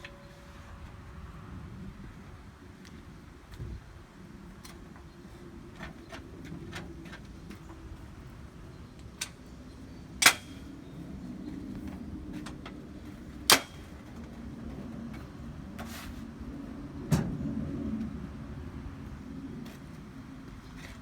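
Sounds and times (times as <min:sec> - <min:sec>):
knocks and clanks of saw stand: 0:10.2 - 0:10.7, 0:13.5 - 0:14.2.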